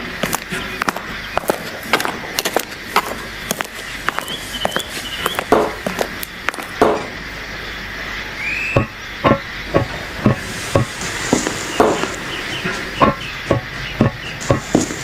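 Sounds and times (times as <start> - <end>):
steam hissing: 8.5 - 15.0
steam locomotive chuffing: 9.3 - 15.0.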